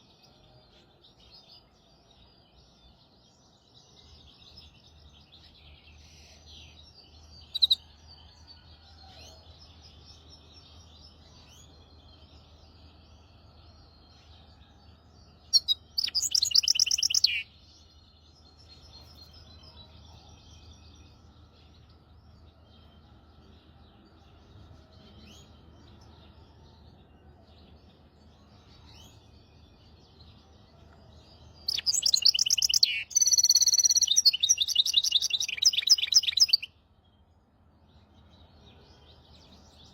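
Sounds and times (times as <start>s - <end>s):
ringing bird song phrases: 0.0s - 39.9s
bird twittering: 15.5s - 17.4s, 31.7s - 36.7s.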